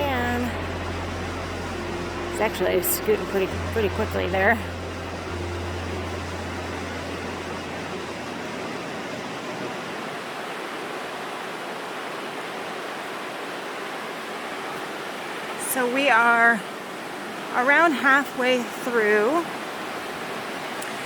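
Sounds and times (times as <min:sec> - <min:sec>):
low hum: 0:00.0 - 0:10.5
river water rushing: 0:00.0 - 0:21.0.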